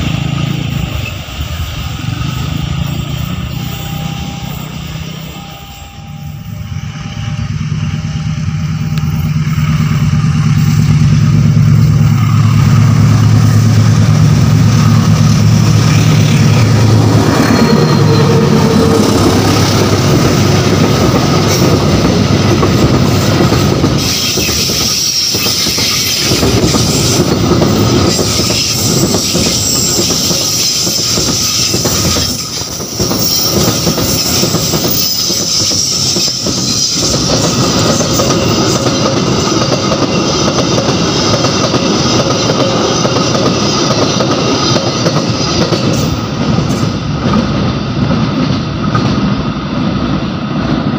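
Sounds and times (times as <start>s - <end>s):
diesel locomotive engine drone: 0.0s - 50.9s
wagons clickety-clack on rail joints: 12.5s - 49.4s.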